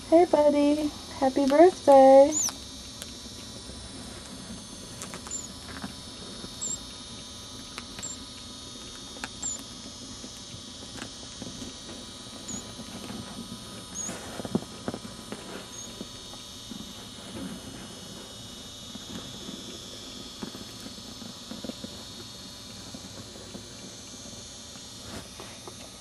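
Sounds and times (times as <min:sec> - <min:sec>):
chick cheeping: 0:02.3 - 0:02.6, 0:08.0 - 0:08.2, 0:09.4 - 0:09.6.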